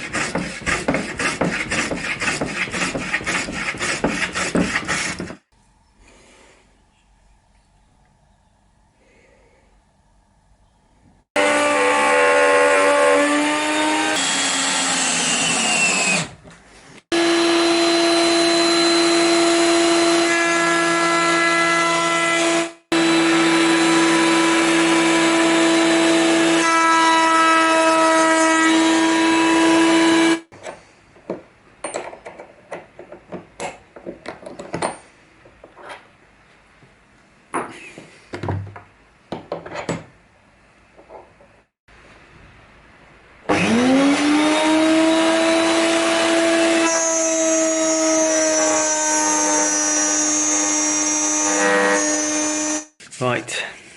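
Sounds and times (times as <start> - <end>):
router high-pitched whine: 17.2 - 20.3, 23.0 - 26.7.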